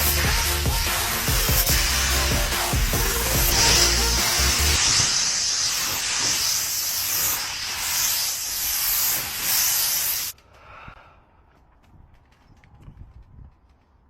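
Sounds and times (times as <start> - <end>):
paint spray gun hissing: 0.0 - 10.4.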